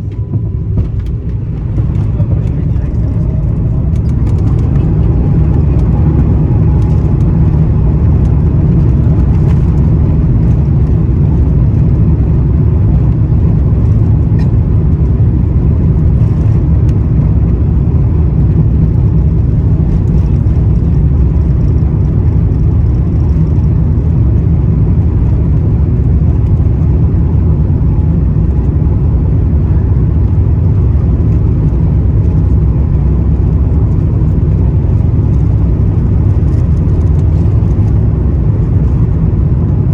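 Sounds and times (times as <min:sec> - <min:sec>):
jet engine low rumble: 0:00.0 - 0:39.9.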